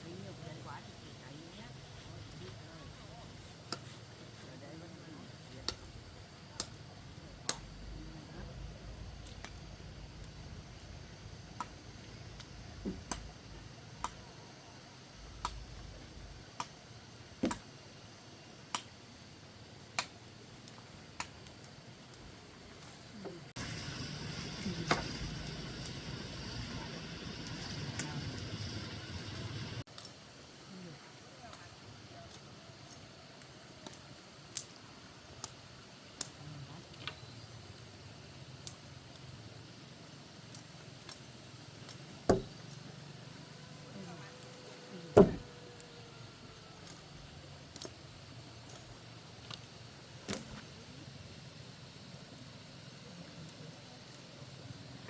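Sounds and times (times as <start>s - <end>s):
wood being chopped: 42.3s - 42.6s, 45.2s - 45.5s
heavy thump: 45.2s - 45.5s
wood snapping: 49.4s - 50.6s.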